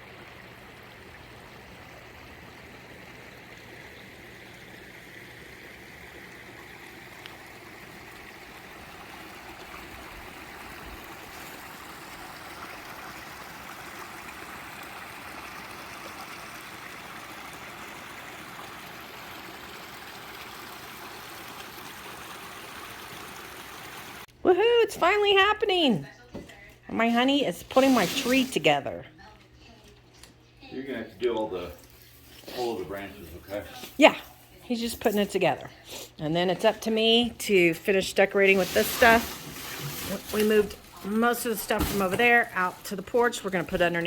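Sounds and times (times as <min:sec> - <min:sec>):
pond waterfall splashing: 0:00.0 - 0:24.3, 0:27.7 - 0:28.8, 0:38.4 - 0:44.0.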